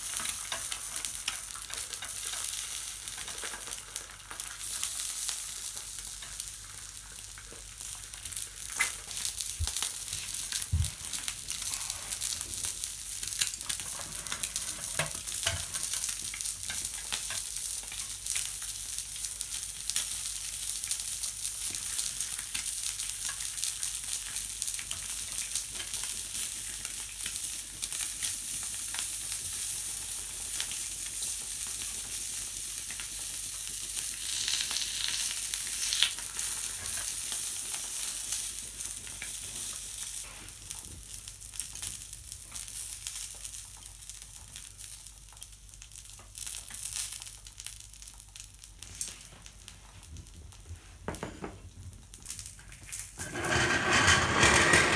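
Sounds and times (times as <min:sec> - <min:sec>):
food sizzling in a frying pan: 0:00.0 - 0:51.4
clicks and scrapes in pan: 0:53.2 - 0:54.9.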